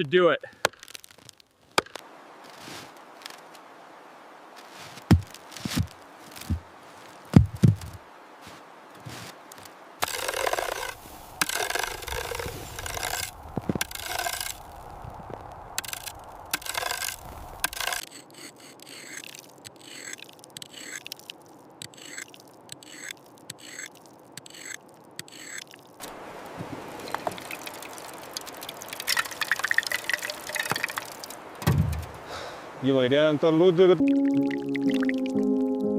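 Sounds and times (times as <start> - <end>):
hand tools scraping ice: 10.0 - 14.6, 15.8 - 25.9.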